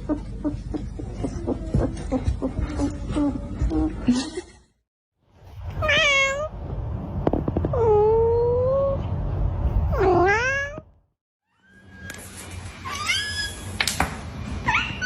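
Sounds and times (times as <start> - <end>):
cat meowing: 5.8 - 6.5, 10.0 - 10.8.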